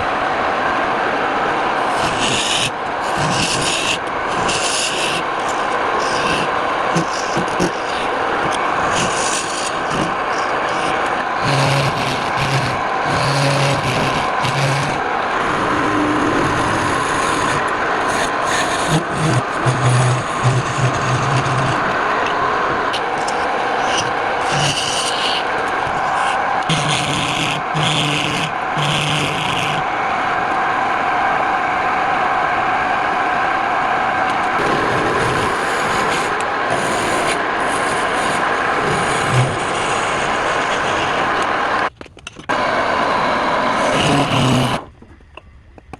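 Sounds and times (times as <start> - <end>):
lathe motor hum: 0.0 - 41.9, 42.5 - 44.9
tool scraping spinning wood: 1.8 - 29.9, 34.6 - 41.5, 43.8 - 44.9.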